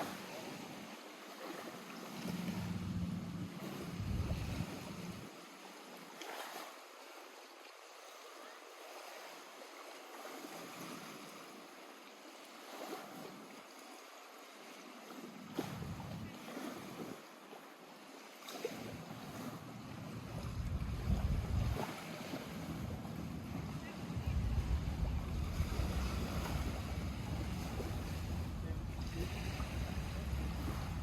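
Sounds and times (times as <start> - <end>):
waves lapping at shore: 0.0 - 31.0
low rumble: 2.6 - 4.7, 20.3 - 21.8, 23.0 - 31.0.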